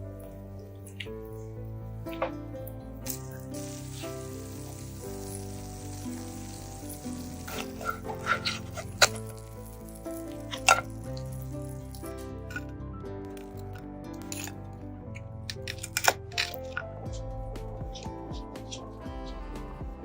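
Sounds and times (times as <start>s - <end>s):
soft background music: 0.0s - 20.0s
batter sizzling in a frying pan: 3.6s - 10.0s.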